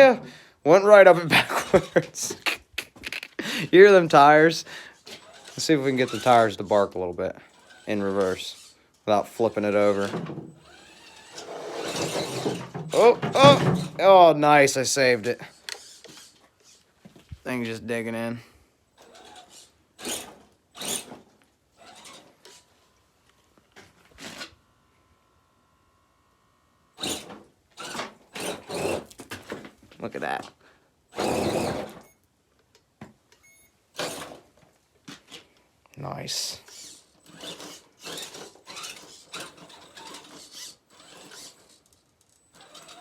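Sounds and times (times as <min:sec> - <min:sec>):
toy car motor whirring: 0:05.0 - 0:13.9, 0:15.4 - 0:16.9, 0:19.0 - 0:23.0, 0:26.8 - 0:29.2, 0:31.1 - 0:32.1, 0:33.9 - 0:34.4, 0:36.6 - 0:43.0
tires scraping over dirt and rock: 0:07.6 - 0:14.0, 0:37.0 - 0:41.8
faint motor whine: 0:18.9 - 0:29.1, 0:36.6 - 0:43.0.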